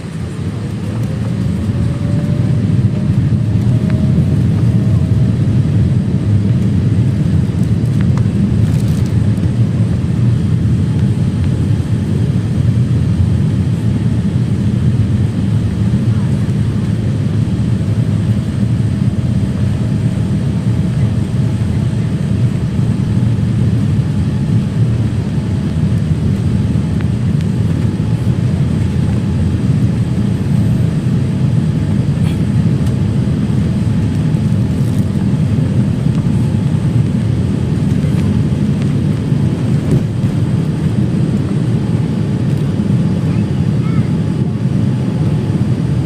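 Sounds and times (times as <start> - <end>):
airliner cabin engine rumble: 0.0 - 46.0.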